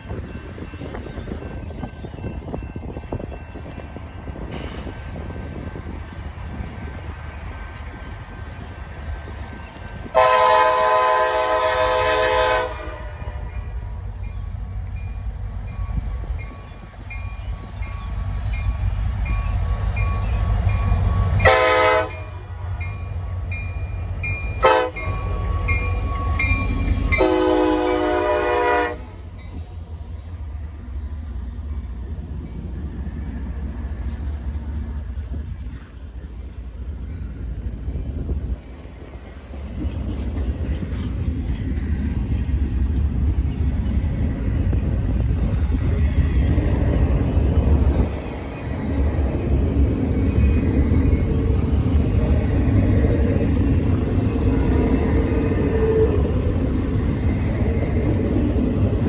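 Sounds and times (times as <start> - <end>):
diesel locomotive rumbling: 0.0 - 59.0
locomotive air horn blasts: 10.1 - 13.5, 21.2 - 22.4, 24.6 - 26.4, 27.1 - 29.2.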